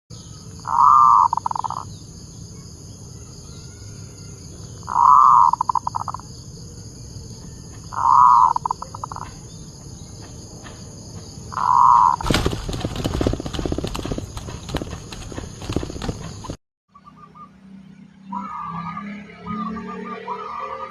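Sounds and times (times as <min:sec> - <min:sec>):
dove cooing: 0:00.7 - 0:01.8, 0:04.9 - 0:06.2, 0:07.9 - 0:09.4, 0:11.5 - 0:14.1
loud rattling noise: 0:12.2 - 0:16.6.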